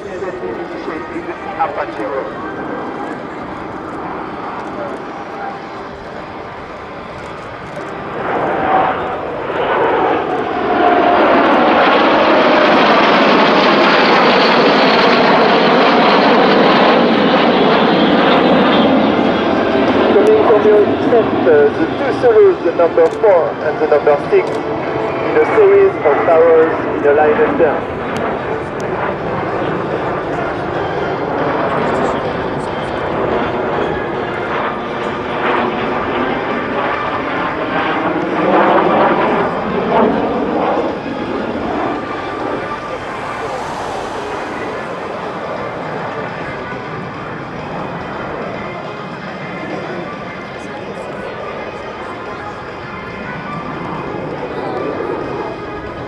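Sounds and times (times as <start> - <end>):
jets flying past: 0.0 - 56.0.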